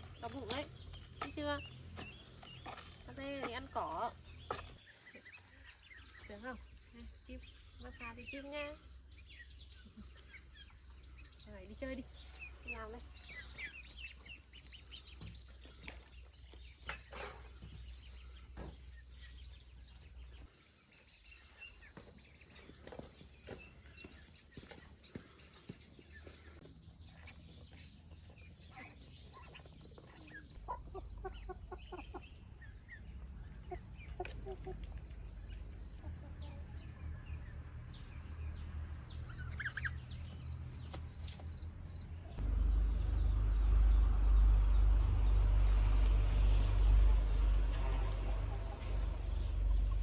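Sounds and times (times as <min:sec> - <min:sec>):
chickens clucking: 0:29.1 - 0:36.8, 0:46.9 - 0:50.0
loud low rumble: 0:41.8 - 0:50.0.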